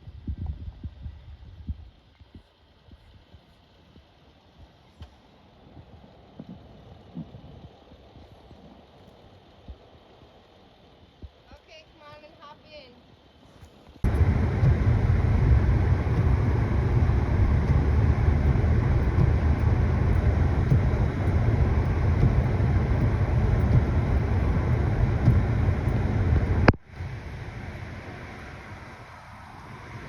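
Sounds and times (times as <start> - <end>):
quiet hiss: 0.0 - 30.0
vehicle driving rumble: 14.0 - 30.0.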